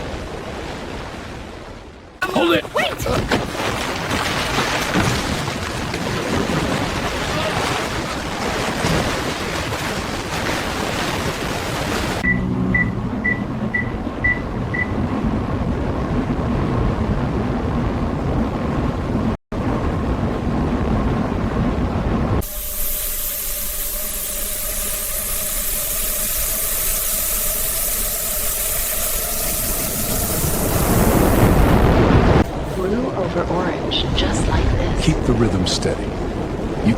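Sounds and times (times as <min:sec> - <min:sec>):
quick high beeps: 0:12.2 - 0:15.0
subway train rumble and hiss: 0:22.4 - 0:34.4.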